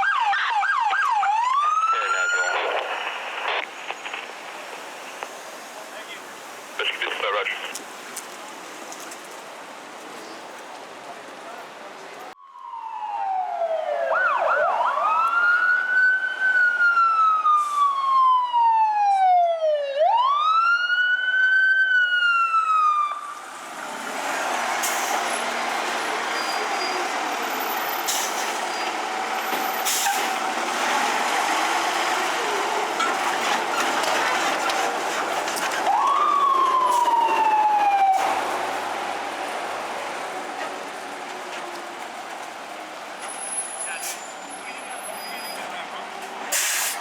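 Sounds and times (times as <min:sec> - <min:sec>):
fire engine siren wailing: 0:00.0 - 0:04.3, 0:12.4 - 0:47.0.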